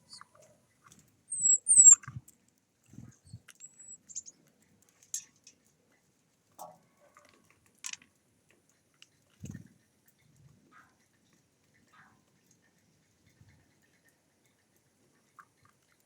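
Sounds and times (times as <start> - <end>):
small bird squeaky calls: 0.0 - 0.4, 1.3 - 2.1, 3.3 - 4.4
soft ticks: 0.1 - 5.8, 6.5 - 16.0.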